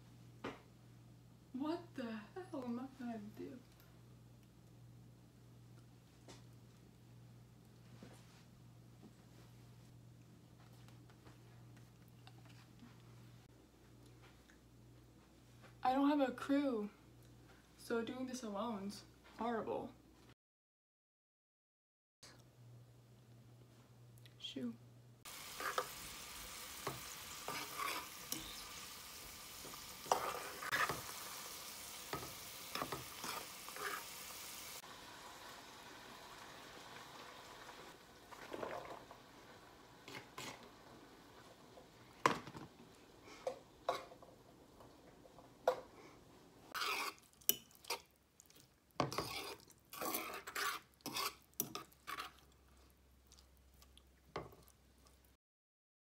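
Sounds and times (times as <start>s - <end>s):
food sizzling in a skillet: 25.3s - 44.4s, 46.7s - 48.1s
fork scraping a pan: 25.4s - 28.7s, 29.6s - 34.5s, 40.1s - 40.7s, 43.3s - 44.2s, 46.7s - 48.1s, 49.0s - 52.5s.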